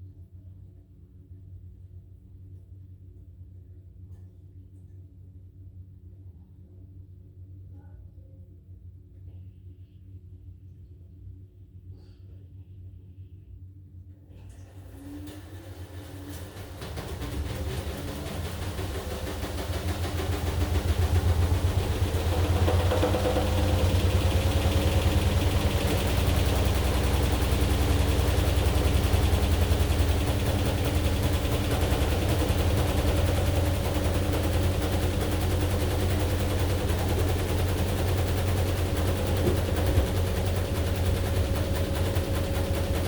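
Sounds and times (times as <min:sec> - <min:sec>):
washing machine rumble and rattle: 0:13.8 - 0:43.0
washing machine motor whine: 0:14.3 - 0:43.0.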